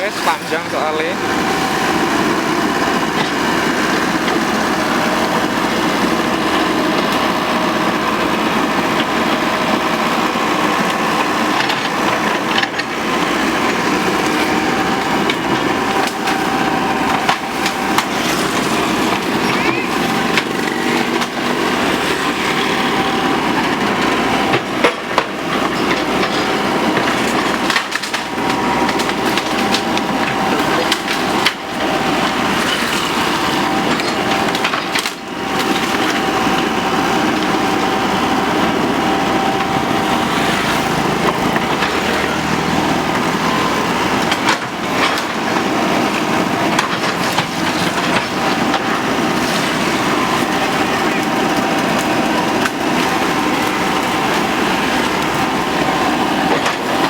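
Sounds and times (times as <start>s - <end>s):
excavator engine running: 0.0s - 57.0s
bamboo cracking and splitting: 26.5s - 32.7s.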